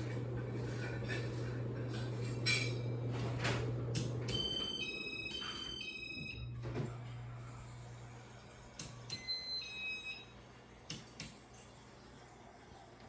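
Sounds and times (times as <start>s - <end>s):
fan motor hum: 0.0s - 13.0s.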